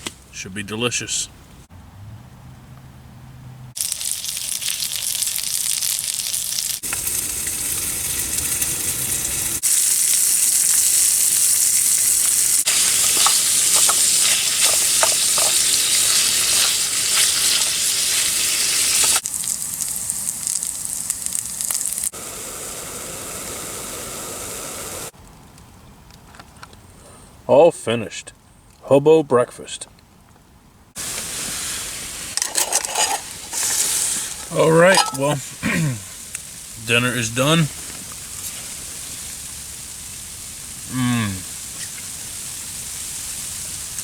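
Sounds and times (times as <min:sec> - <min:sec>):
food sizzling in a frying pan: 0:03.8 - 0:25.1, 0:31.0 - 0:44.0.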